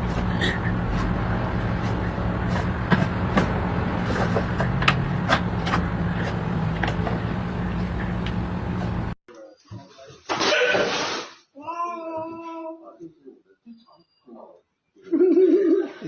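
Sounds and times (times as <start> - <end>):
low machine hum: 0.0 - 9.2
sharp clicks and knocks: 2.6 - 8.4.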